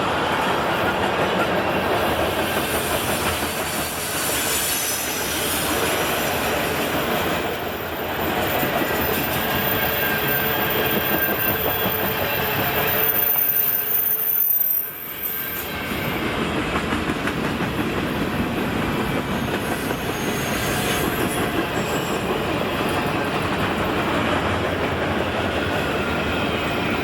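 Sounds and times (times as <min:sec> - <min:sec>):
train wheels clattering on rails: 0:00.0 - 0:13.9, 0:15.6 - 0:27.0
high-pitched wheel squeal: 0:08.8 - 0:16.3, 0:19.8 - 0:22.3.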